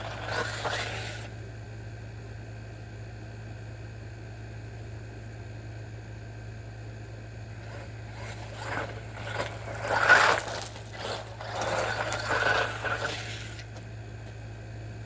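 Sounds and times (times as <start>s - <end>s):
steady low hum: 0.0s - 15.0s
radio-controlled model rushing past: 7.6s - 13.7s.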